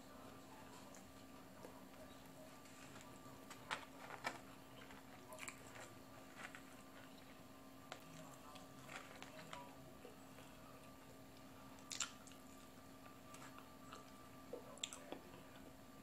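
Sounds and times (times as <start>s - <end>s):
faint steady hum: 0.0s - 16.0s
person chewing: 11.8s - 12.6s.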